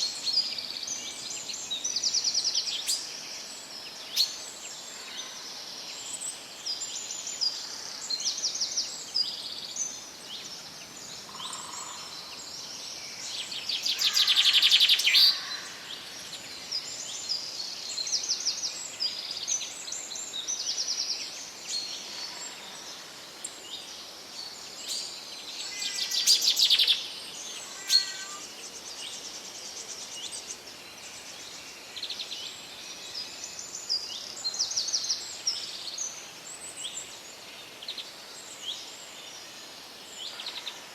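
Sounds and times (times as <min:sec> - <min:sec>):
forest birds chirping: 0:00.0 - 0:40.9
bird trills: 0:27.7 - 0:28.4.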